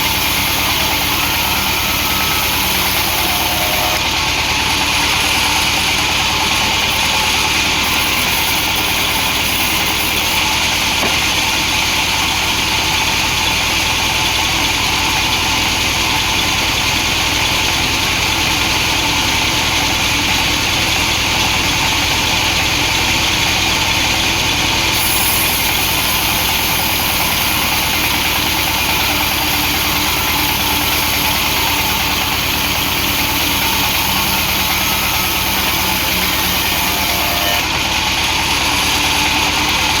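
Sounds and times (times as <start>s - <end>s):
chainsaw cutting log: 0.0s - 16.6s, 24.9s - 40.0s.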